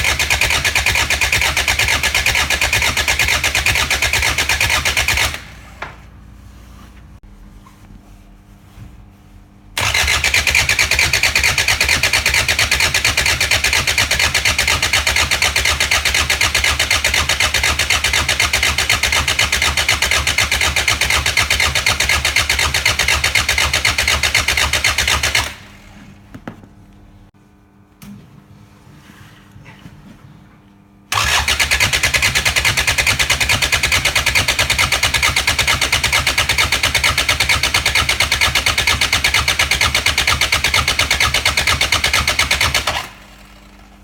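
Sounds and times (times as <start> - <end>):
starter motor cranking diesel engine: 0.0 - 5.7, 9.8 - 26.0, 31.1 - 44.0.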